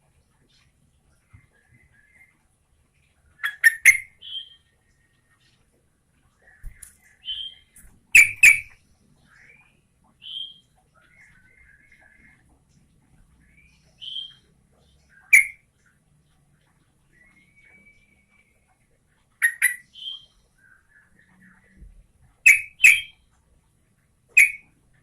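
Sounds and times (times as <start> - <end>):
bird chattering: 3.4 - 4.6, 6.5 - 8.8, 15.1 - 15.6, 19.4 - 20.3, 22.4 - 23.2, 24.3 - 24.7
bird singing sharp notes: 6.6 - 8.8, 22.5 - 23.2, 24.4 - 24.7.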